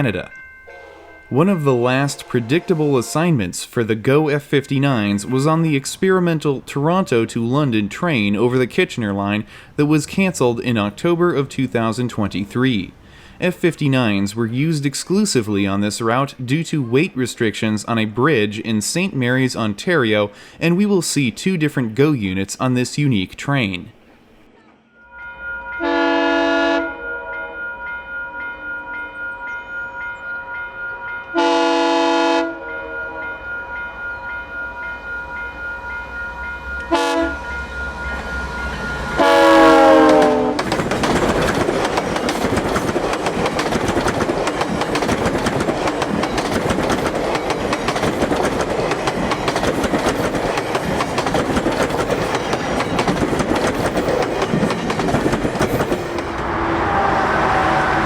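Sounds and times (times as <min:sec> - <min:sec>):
crossing bell ringing: 0:00.0 - 0:08.0, 0:24.8 - 0:56.4
train horn blasts: 0:00.7 - 0:03.5, 0:24.9 - 0:28.8, 0:30.9 - 0:40.6, 0:56.4 - 0:58.0
train rumbling and clattering by: 0:32.6 - 0:58.0.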